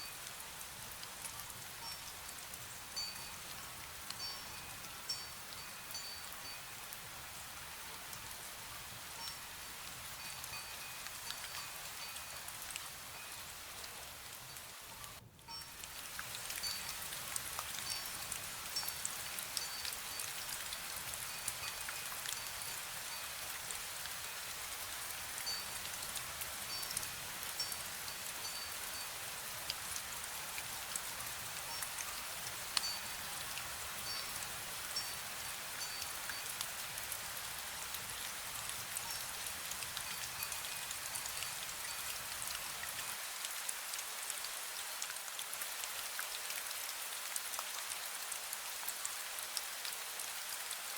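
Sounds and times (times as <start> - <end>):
light rain: 0.0 - 50.9
metal wind bell ringing: 3.0 - 3.4, 4.2 - 6.8, 10.2 - 12.5, 17.8 - 20.3, 31.7 - 33.3, 34.0 - 36.5.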